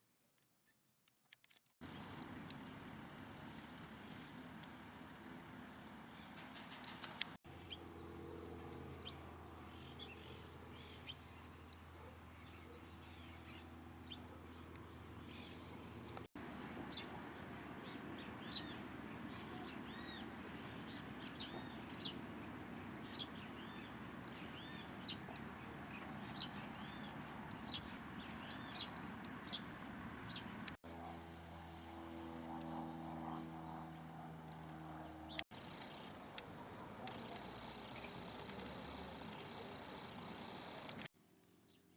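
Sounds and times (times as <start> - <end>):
small birds chirping: 9.0 - 30.8, 35.5 - 41.1.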